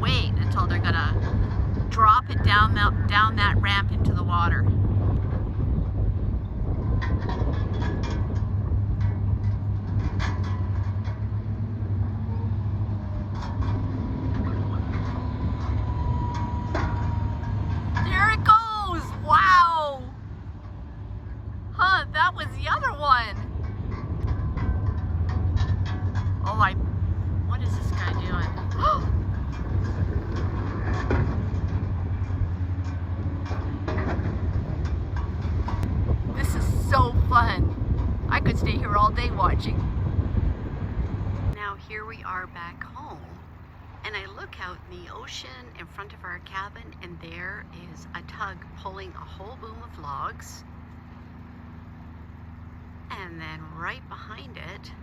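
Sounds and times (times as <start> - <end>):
metallic clanks and knocks: 0.0 - 3.0, 4.3 - 36.2
diesel machinery rumbling: 0.0 - 55.0.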